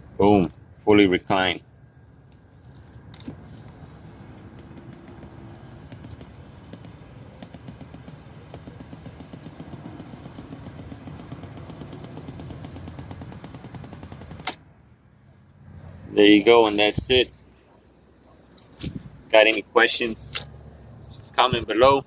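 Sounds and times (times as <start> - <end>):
insects trilling: 1.4 - 3.8, 5.2 - 9.3, 11.5 - 13.0, 16.6 - 19.0
sharp click: 14.4 - 14.6, 20.3 - 20.6
low steady rumble: 18.7 - 22.0.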